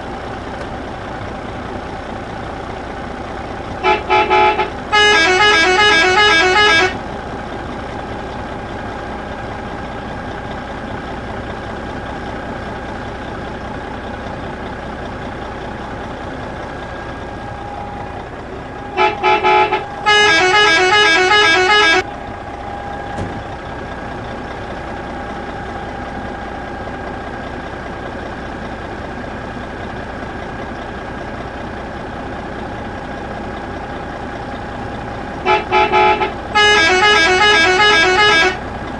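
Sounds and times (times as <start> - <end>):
engine hum: 0.0 - 38.9
vehicle horn pulsing blasts: 3.8 - 7.0, 18.8 - 22.1, 35.4 - 38.7.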